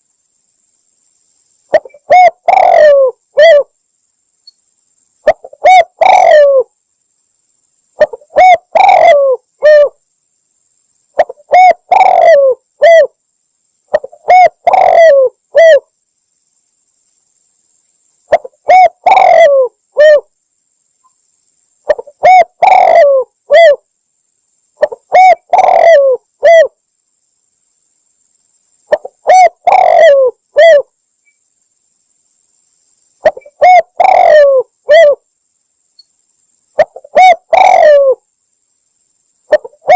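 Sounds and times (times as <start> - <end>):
dove cooing: 1.7 - 3.7, 5.3 - 6.7, 8.0 - 10.0, 11.2 - 13.1, 13.9 - 15.8, 18.3 - 20.3, 21.9 - 23.8, 24.8 - 26.8, 28.9 - 30.9, 33.2 - 35.2, 36.8 - 38.2, 39.5 - 39.9.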